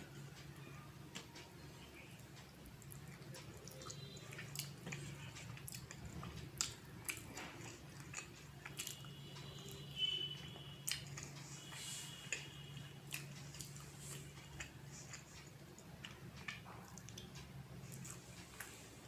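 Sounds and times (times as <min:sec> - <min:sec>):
low steady hum: 0:00.0 - 0:19.0
chewing with mouth clicks: 0:01.2 - 0:19.0.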